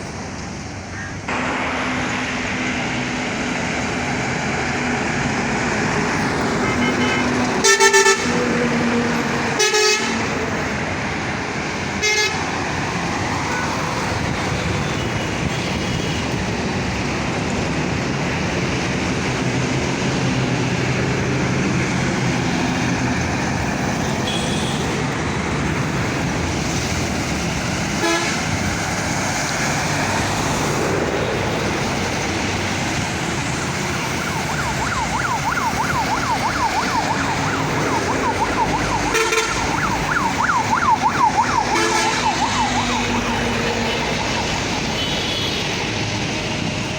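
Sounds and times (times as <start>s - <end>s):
road traffic noise: 0.0s - 46.9s
vehicle horns honking: 6.6s - 8.6s, 9.6s - 10.3s, 12.0s - 12.5s, 24.0s - 25.0s, 28.0s - 28.6s, 39.1s - 39.9s, 41.7s - 42.4s, 44.9s - 45.8s.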